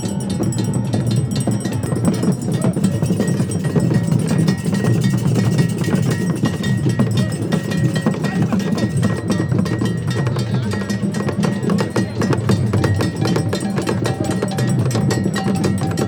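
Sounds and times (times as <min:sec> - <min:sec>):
drums: 0:00.0 - 0:16.0
sharp clacking percussion: 0:00.0 - 0:16.0.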